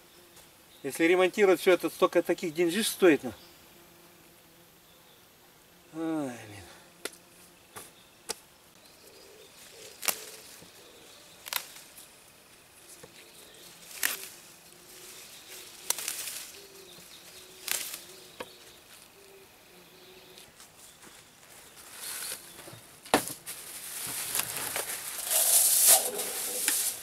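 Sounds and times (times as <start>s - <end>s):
rustles and clicks of handling: 20.4s - 27.0s.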